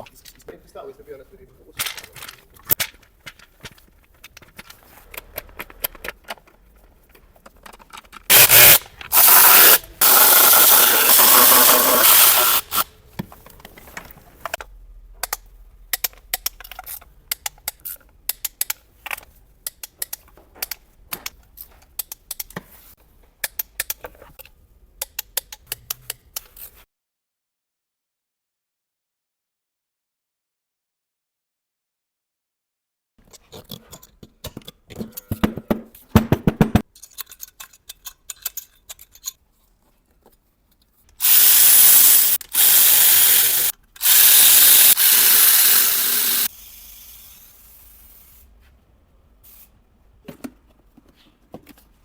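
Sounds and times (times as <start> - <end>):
hand tools clicking and scraping: 1.8 - 14.6, 41.0 - 46.5
spraying hiss: 8.3 - 12.8, 41.2 - 48.3.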